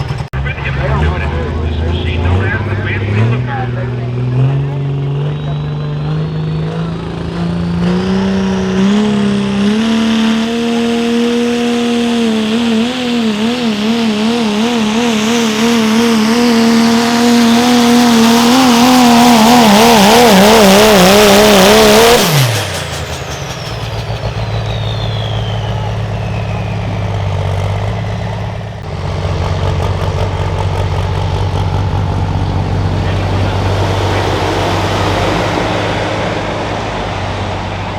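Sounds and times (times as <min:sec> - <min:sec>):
diesel engine under load: 0:00.0 - 0:37.9
high whistle winding down: 0:11.3 - 0:27.4.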